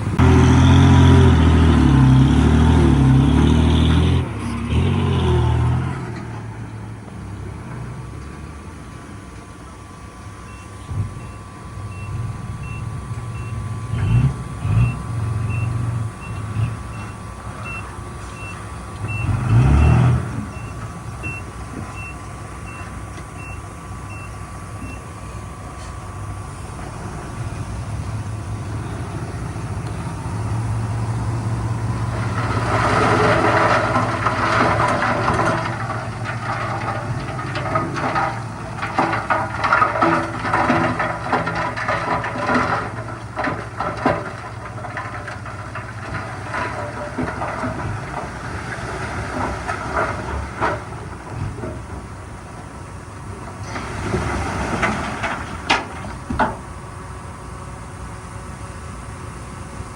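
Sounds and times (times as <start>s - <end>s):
diesel engine idling: 0.0s - 59.9s
reversing alarm beeping: 10.4s - 19.4s, 20.5s - 25.2s.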